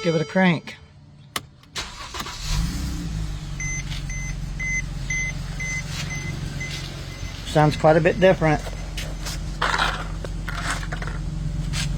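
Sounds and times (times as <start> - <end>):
warning chime beeping: 0.0 - 0.9, 3.6 - 9.4
car engine starting and idling: 1.0 - 11.9.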